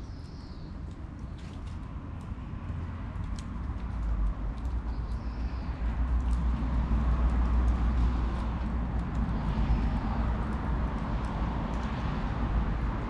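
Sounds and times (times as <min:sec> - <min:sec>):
fire low rumble: 0:05.7 - 0:13.0.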